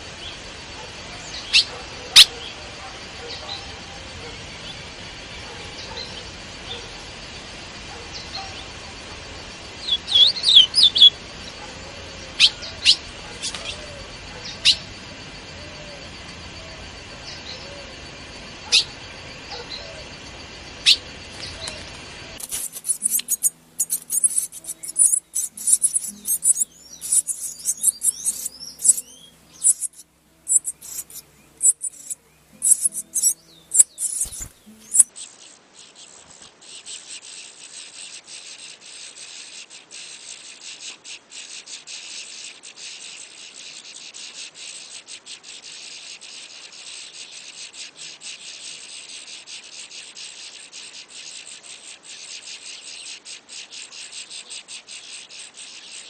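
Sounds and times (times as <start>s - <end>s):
steady hiss: 0.0s - 54.6s
small birds chirping: 0.0s - 56.0s
high-pitched bird cheeps: 22.4s - 35.1s.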